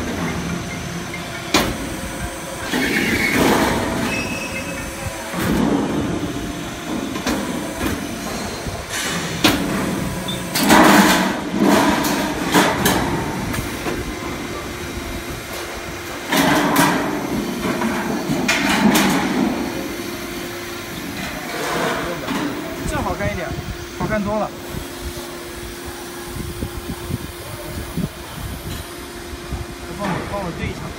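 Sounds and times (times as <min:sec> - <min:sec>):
machine drone: 0:00.0 - 0:30.9.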